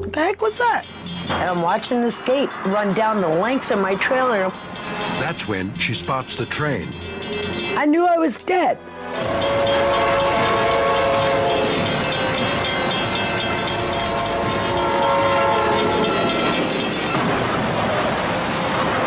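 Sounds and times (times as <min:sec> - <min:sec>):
rushing noise of train: 0:00.1 - 0:19.0
train horn chord: 0:08.8 - 0:12.9, 0:13.6 - 0:16.4.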